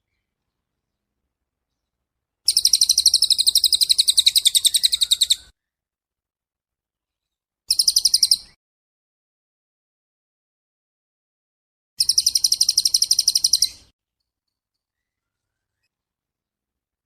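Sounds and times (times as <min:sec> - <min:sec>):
songbird rapid trill: 0:02.5 - 0:05.5, 0:07.7 - 0:08.6, 0:12.0 - 0:15.9.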